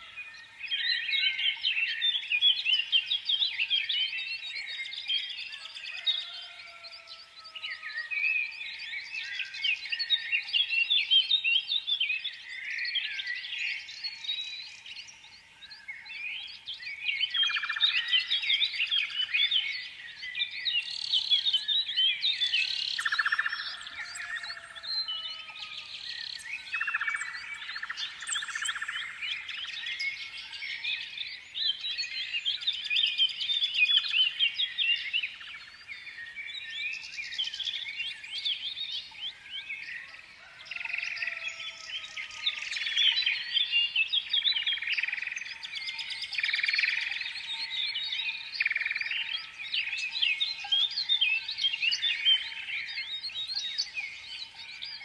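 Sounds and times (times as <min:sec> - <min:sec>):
songbirds chirping and twittering: 0:00.0 - 0:55.0.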